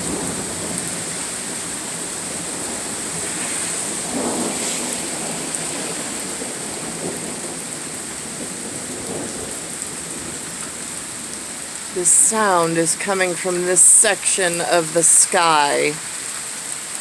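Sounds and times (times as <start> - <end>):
thunder rumbling: 0.0 - 7.7
steady rain falling: 0.0 - 17.0.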